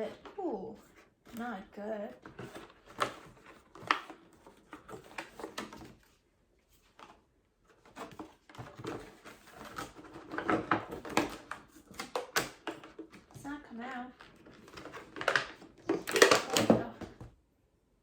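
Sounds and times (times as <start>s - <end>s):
glass and packaging handling noises: 7.8s - 13.4s, 14.2s - 17.2s.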